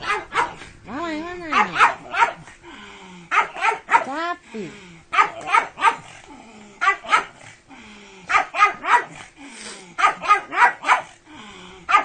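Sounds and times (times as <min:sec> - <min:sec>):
dog barking: 0:00.0 - 0:00.6, 0:01.5 - 0:02.5, 0:03.3 - 0:04.2, 0:05.1 - 0:06.1, 0:06.8 - 0:07.4, 0:08.3 - 0:09.3, 0:10.0 - 0:11.2.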